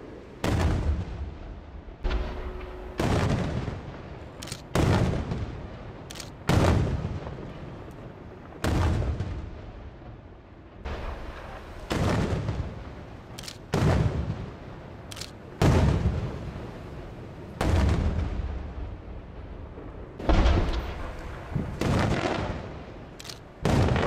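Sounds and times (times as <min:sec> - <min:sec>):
firework sharp cracks: 0:00.4 - 0:01.4, 0:02.0 - 0:07.5, 0:10.9 - 0:14.5, 0:20.2 - 0:24.0
firework shells booming: 0:02.0 - 0:05.7, 0:20.2 - 0:23.0, 0:23.6 - 0:24.0.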